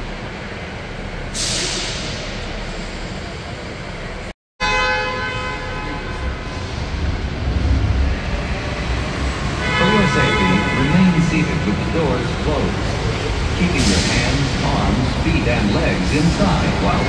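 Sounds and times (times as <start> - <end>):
low rumble of tram moving: 0.0 - 4.3, 5.8 - 17.0
tram road and motor noise: 0.0 - 17.0
tram horn tone: 4.6 - 14.6.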